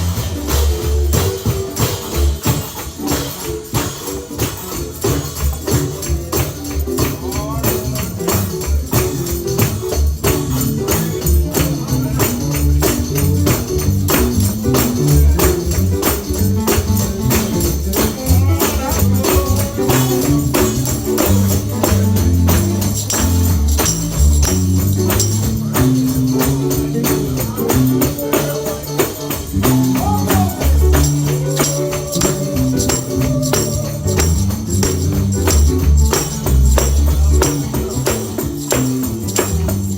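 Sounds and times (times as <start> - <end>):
bass line: 0.0 - 3.2, 4.4 - 39.9
tambourine shaken: 0.0 - 39.9
person singing: 14.6 - 22.5, 25.6 - 38.9.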